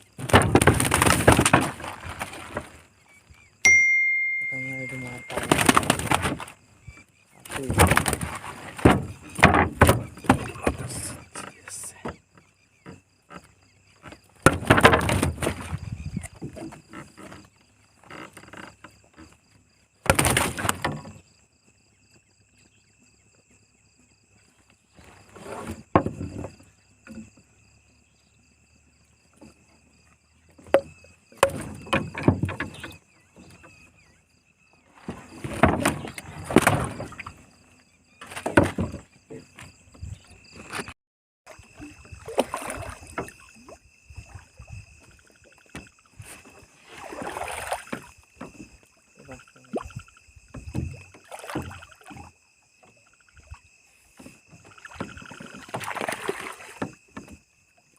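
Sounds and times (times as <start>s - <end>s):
night insects trilling: 0.0s - 3.7s, 4.5s - 57.9s
water splashing: 41.5s - 52.4s, 54.6s - 57.2s.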